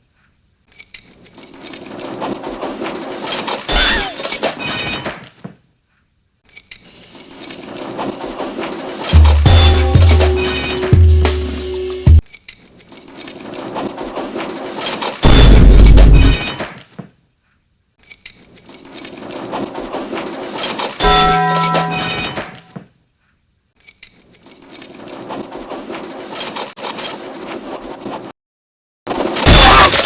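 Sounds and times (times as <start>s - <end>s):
heavy impact: 8.2s - 12.2s
sharp hit with ringing tone: 9.2s - 12.2s, 21.0s - 22.6s
breaking noise: 29.1s - 30.0s.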